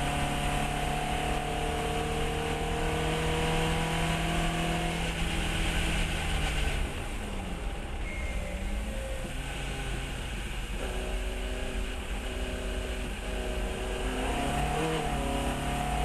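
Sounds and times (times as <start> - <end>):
race car engine revving: 8.5 - 16.0.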